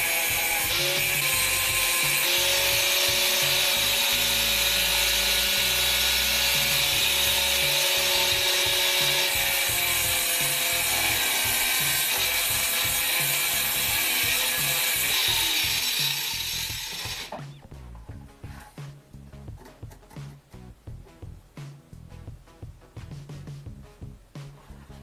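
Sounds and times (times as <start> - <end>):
angle grinder grinding steel: 0.0 - 17.6.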